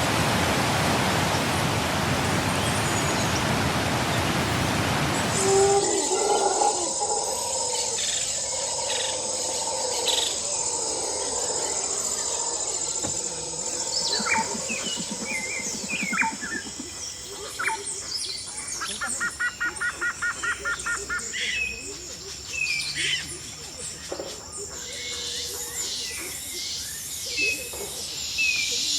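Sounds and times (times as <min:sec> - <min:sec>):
birds calling: 0:02.5 - 0:28.8
high insect drone: 0:05.0 - 0:17.9.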